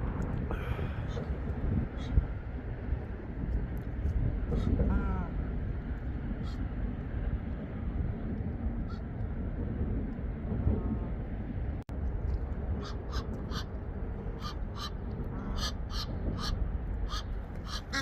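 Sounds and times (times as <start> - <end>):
low background rumble: 0.0 - 18.0
birds giving harsh calls: 14.4 - 18.0.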